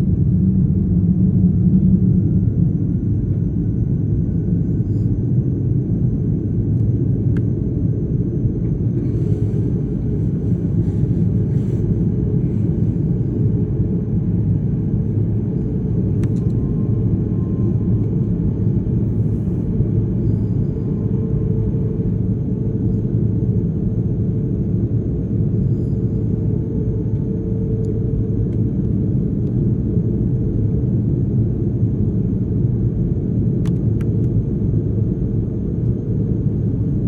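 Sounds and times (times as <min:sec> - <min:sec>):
jet engines idling: 0:08.6 - 0:25.5.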